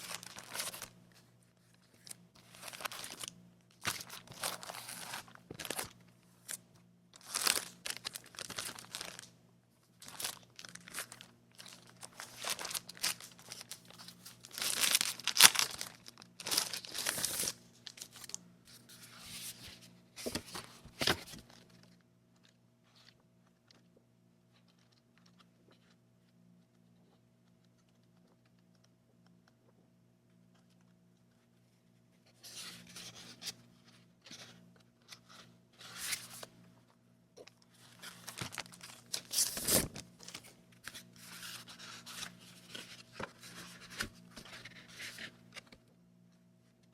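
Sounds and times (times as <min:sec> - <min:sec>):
paper crinkling and tearing: 0:00.0 - 0:00.9, 0:02.0 - 0:05.9, 0:07.2 - 0:09.3, 0:10.0 - 0:21.6, 0:37.8 - 0:45.7.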